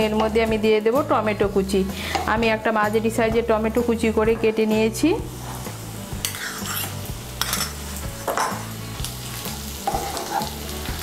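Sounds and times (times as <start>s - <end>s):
food sizzling in oil: 0.0s - 11.0s
spatula scraping pan: 5.4s - 7.8s, 9.8s - 10.6s.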